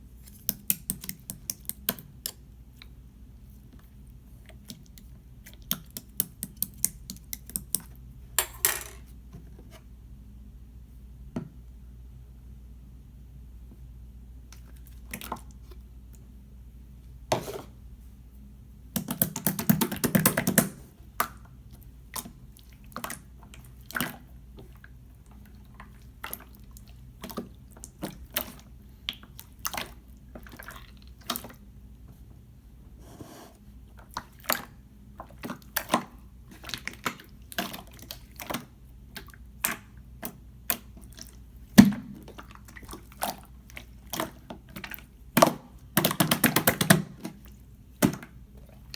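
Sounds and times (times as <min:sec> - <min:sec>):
slime squishing: 0:33.9 - 0:48.9.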